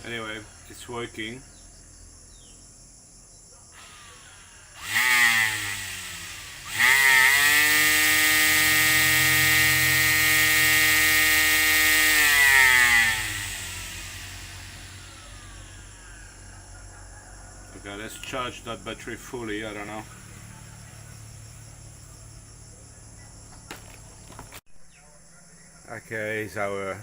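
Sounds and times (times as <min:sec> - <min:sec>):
string trimmer motor whine: 0:03.7 - 0:16.4, 0:17.7 - 0:21.9.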